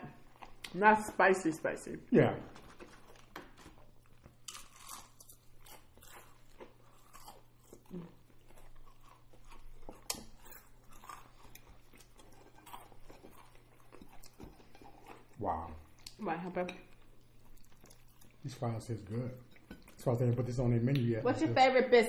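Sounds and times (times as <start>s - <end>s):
crunchy chewing of fried chicken: 2.5s - 16.2s, 16.9s - 19.0s.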